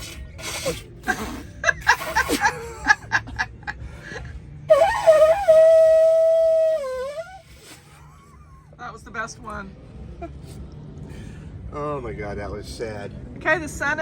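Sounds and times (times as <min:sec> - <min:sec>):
conch shell horn blowing: 0:04.7 - 0:07.8.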